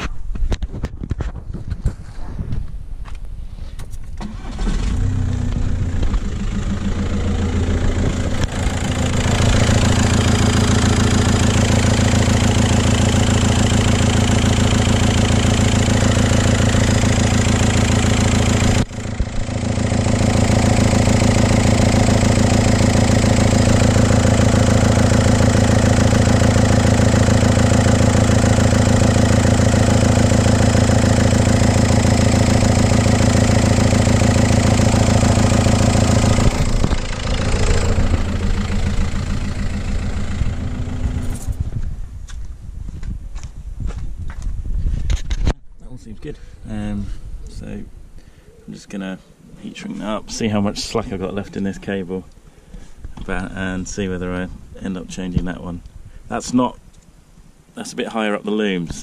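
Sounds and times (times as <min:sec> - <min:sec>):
diesel engine starting and idling: 0:04.2 - 0:42.1.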